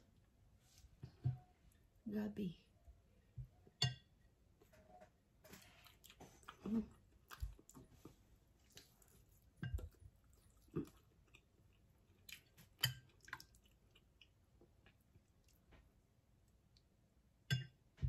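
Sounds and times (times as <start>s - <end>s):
person chewing food: 5.5s - 16.9s.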